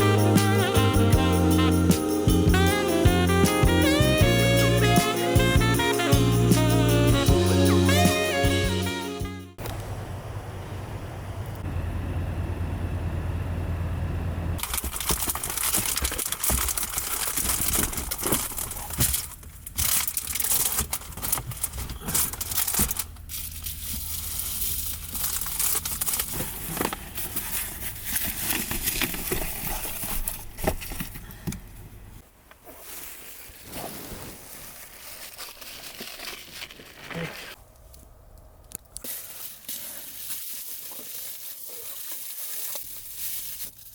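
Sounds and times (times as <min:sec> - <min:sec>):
packaging crinkling: 0:14.6 - 0:31.4, 0:34.5 - 0:37.6, 0:39.0 - 0:43.9.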